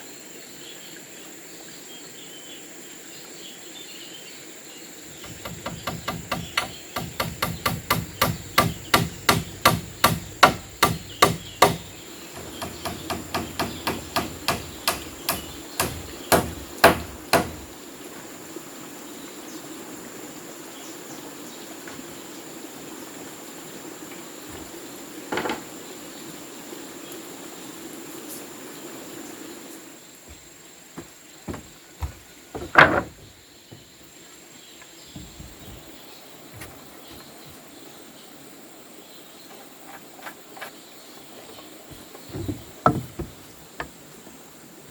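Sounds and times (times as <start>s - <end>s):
high insect drone: 0.0s - 44.9s
hammering on wood: 5.2s - 17.7s, 31.0s - 33.9s, 42.3s - 44.0s
single knock: 42.3s - 43.9s.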